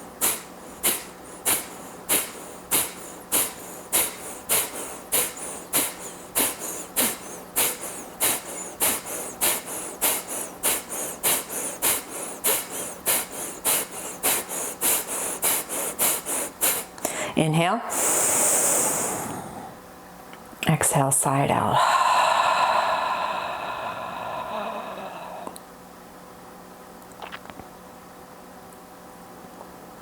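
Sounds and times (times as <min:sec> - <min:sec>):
person exhaling sharp puffs: 0:00.0 - 0:19.8, 0:21.8 - 0:25.6.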